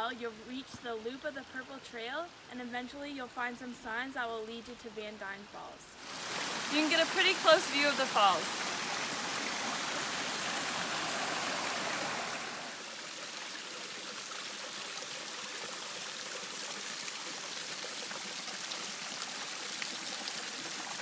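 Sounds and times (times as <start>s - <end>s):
waterfall rushing: 6.0s - 13.0s.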